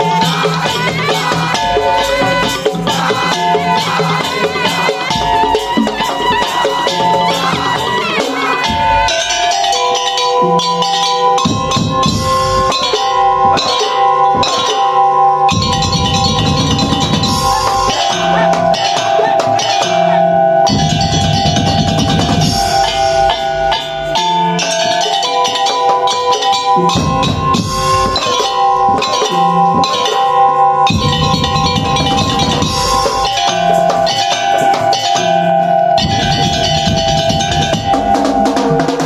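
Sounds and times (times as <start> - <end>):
heavy drumming: 0.0 - 39.0
percussion ensemble playing: 0.0 - 39.0
sustained melody: 0.0 - 39.0.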